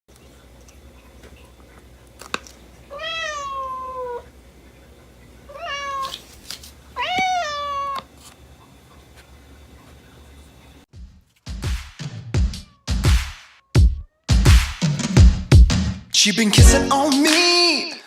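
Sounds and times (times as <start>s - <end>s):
cat meowing: 2.9s - 4.3s, 5.5s - 6.2s, 7.0s - 8.1s, 12.6s - 13.0s.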